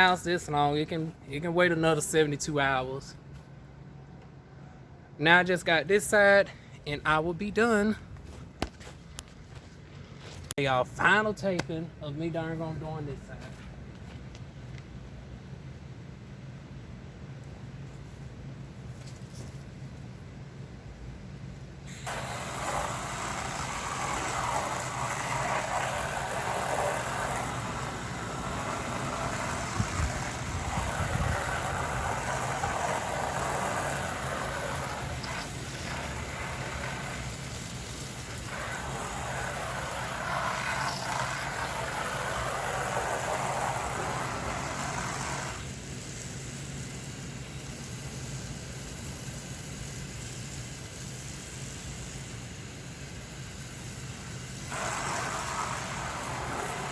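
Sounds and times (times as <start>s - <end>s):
hose spraying siding: 21.9s - 56.9s.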